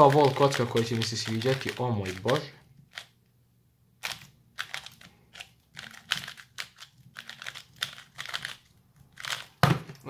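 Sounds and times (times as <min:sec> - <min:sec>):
puzzle cube plastic clacks: 0:00.0 - 0:03.1.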